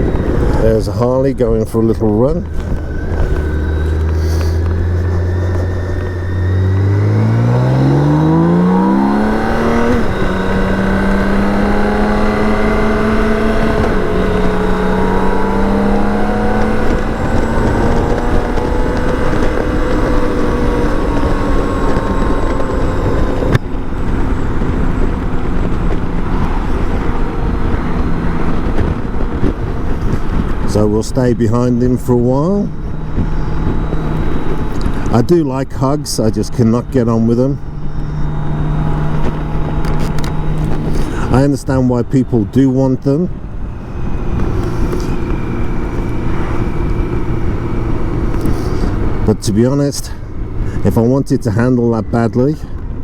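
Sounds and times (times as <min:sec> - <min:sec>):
motorcycle engine revving: 0:00.0 - 0:53.0
wind rushing over microphone: 0:00.0 - 0:53.0.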